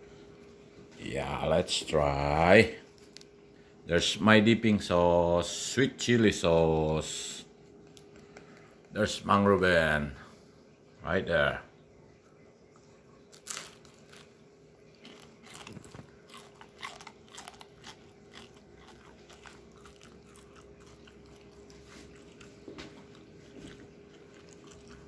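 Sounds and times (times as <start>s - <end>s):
person chewing crisp food: 13.3s - 25.0s.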